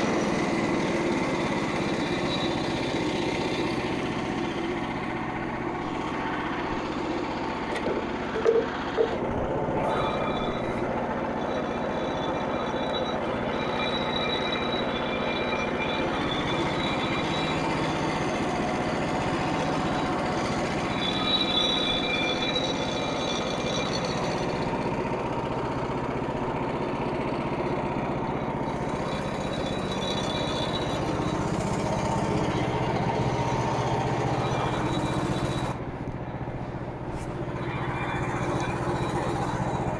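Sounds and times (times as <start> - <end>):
high whine: 0.0 - 39.9
sawmill engine running: 0.0 - 39.9.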